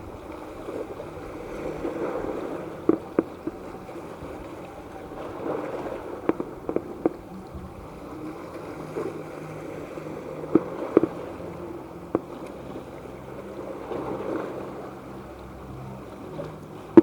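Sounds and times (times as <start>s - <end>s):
background hum: 0.0s - 17.0s
outdoor crowd noise: 0.0s - 17.0s.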